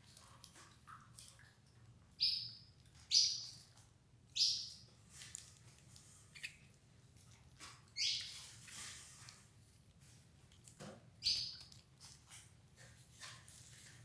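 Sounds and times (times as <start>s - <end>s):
canaries chirping: 2.2s - 3.6s, 4.3s - 5.0s, 6.1s - 6.6s, 7.6s - 9.2s, 11.2s - 11.7s.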